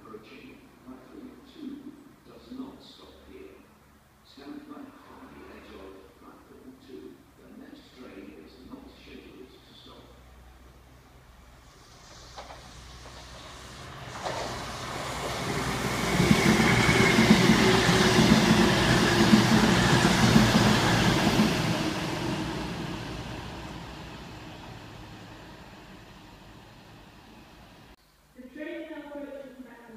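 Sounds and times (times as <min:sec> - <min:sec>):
diesel train passing: 0:10.6 - 0:28.0.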